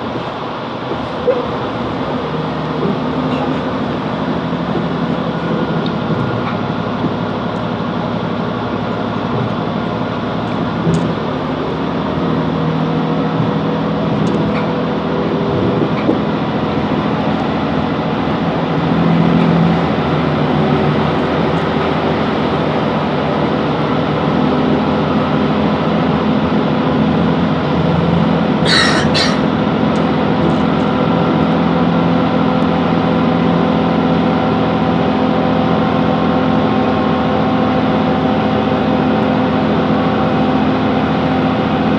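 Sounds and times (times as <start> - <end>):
wheel and rail noise: 0.0 - 23.8
diesel engine drone: 0.0 - 41.9.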